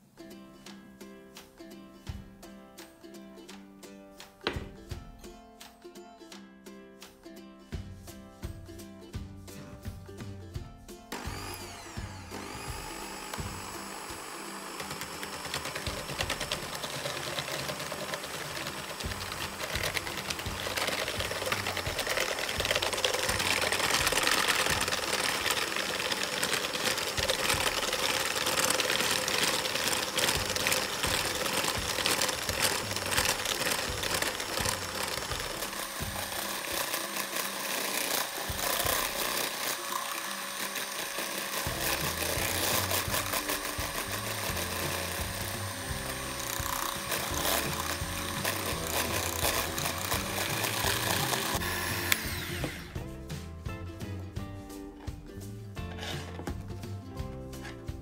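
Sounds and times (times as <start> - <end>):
electric hand mixer whipping: 11.1 - 53.1, 55.9 - 56.6.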